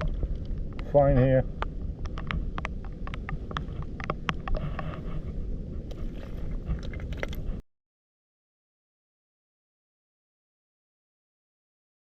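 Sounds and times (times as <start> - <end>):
wind on microphone: 0.0 - 7.6
sharp clicks and taps: 1.6 - 4.9.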